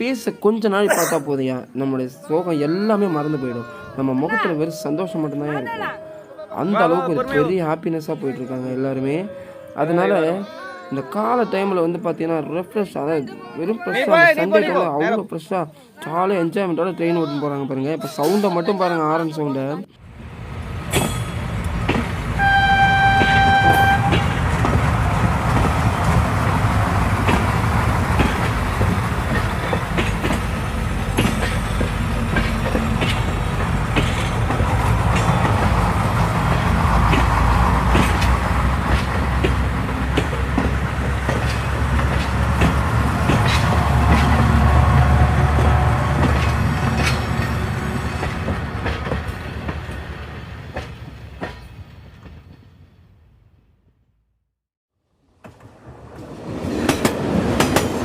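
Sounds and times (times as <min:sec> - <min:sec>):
train running on rails: 0:20.0 - 0:53.3, 0:55.3 - 0:58.0
horn blast: 0:22.4 - 0:24.4.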